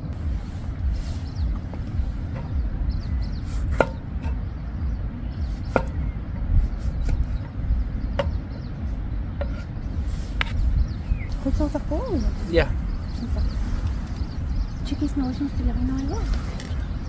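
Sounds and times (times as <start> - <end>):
steady low rumble: 0.0 - 17.0
knife chopping on cutting board: 5.6 - 6.2.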